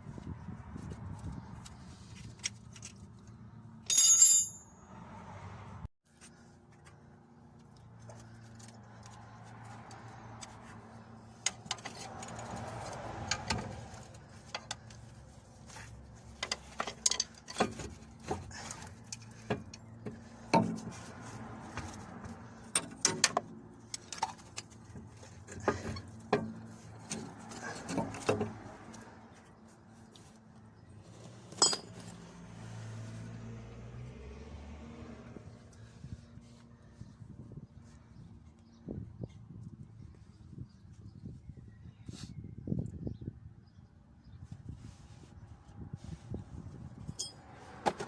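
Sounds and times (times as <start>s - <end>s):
metal tools clinking and knocking: 3.8s - 4.8s, 16.4s - 20.0s, 31.5s - 32.2s, 47.1s - 47.4s.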